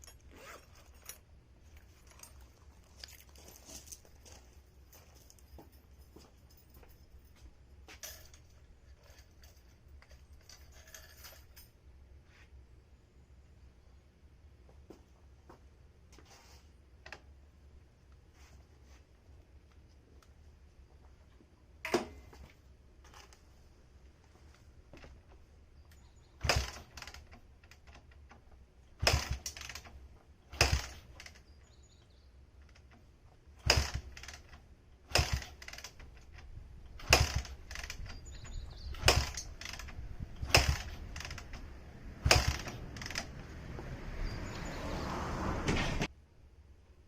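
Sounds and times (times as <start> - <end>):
kick-starter knocks: 38.9 - 43.3.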